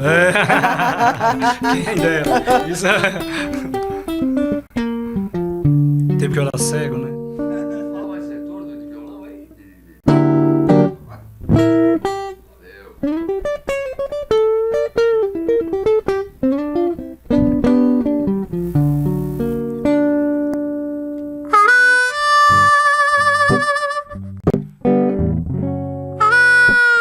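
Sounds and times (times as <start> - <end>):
guitar picking notes and chords: 0.0 - 27.0
blues harmonica: 1.2 - 5.8, 13.1 - 20.5, 21.2 - 24.4, 26.1 - 27.0.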